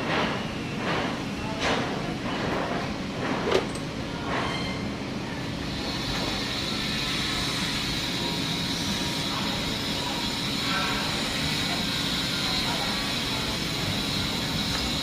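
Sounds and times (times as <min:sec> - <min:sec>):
engine running with heavy knock: 0:00.0 - 0:03.7.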